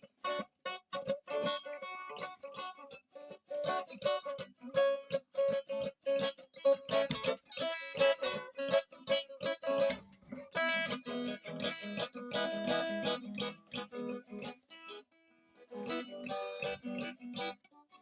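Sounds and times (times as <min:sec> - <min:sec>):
acoustic guitar strumming: 0:03.5 - 0:15.0, 0:15.6 - 0:17.9.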